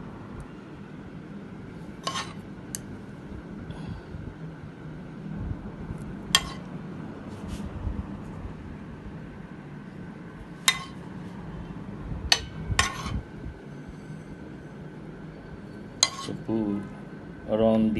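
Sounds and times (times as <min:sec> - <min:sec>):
low hum: 0:00.0 - 0:17.9
utensil clinking on a plate: 0:02.0 - 0:02.4, 0:16.0 - 0:16.5.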